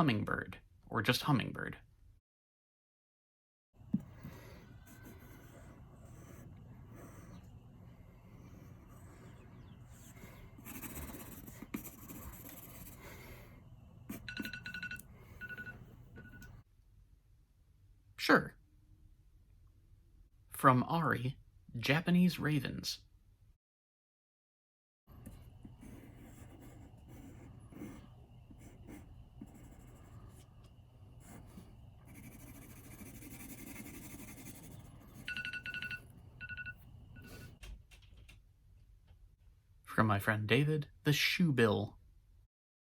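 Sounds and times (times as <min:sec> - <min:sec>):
pen scribbling on paper: 0:04.0 - 0:13.3, 0:25.3 - 0:30.5, 0:31.2 - 0:35.4
electronic timer alarm beeping: 0:14.1 - 0:16.5, 0:35.1 - 0:37.6
digital timer beeping: 0:35.2 - 0:37.4.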